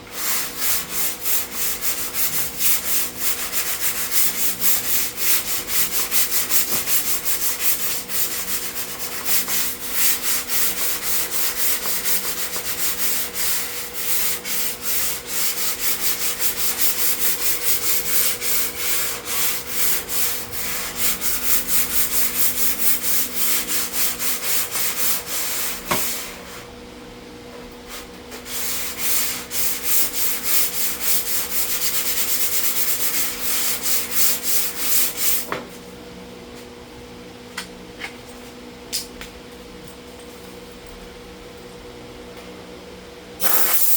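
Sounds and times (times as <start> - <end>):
steady low hum: 0.0 - 43.9
hand sanding rasping strokes: 0.1 - 26.5, 28.4 - 35.5.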